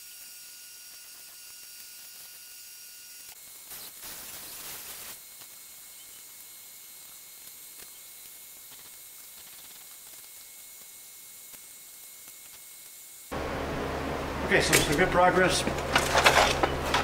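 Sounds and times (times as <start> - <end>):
welding arc hissing and sizzling: 0.0 - 13.4.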